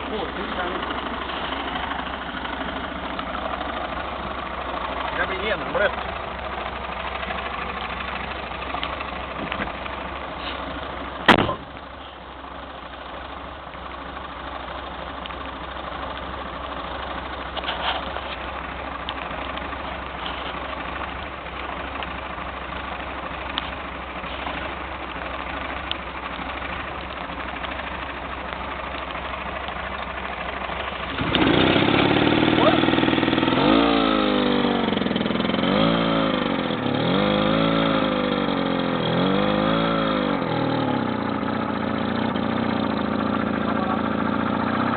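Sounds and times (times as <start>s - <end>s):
petrol air compressor running: 30.4s - 36.2s.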